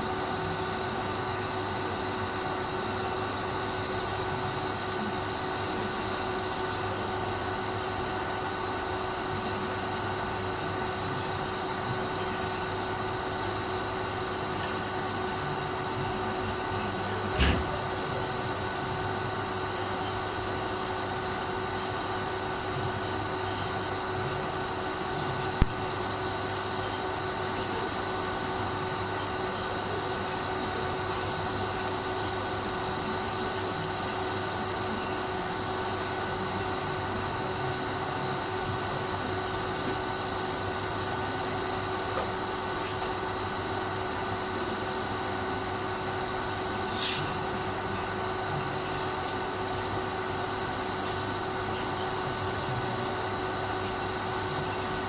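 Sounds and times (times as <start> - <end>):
welding arc buzzing hiss: 11.4 - 23.4, 38.0 - 55.0
sharp click: 17.3 - 18.0
short knock: 17.3 - 18.1.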